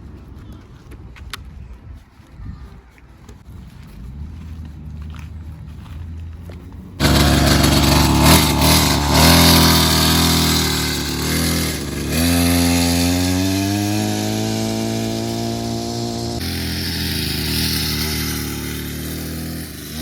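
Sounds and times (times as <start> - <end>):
dirt bike engine revving: 7.0 - 20.0.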